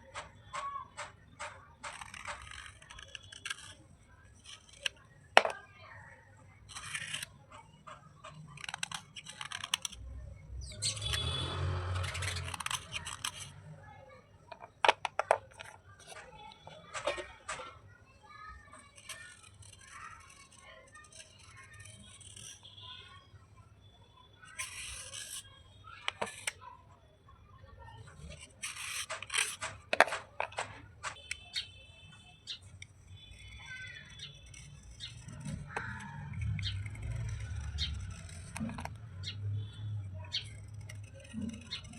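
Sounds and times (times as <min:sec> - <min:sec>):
slate scraping: 0:06.6 - 0:10.0, 0:10.8 - 0:13.6, 0:24.5 - 0:26.6, 0:28.1 - 0:31.4, 0:32.6 - 0:41.9.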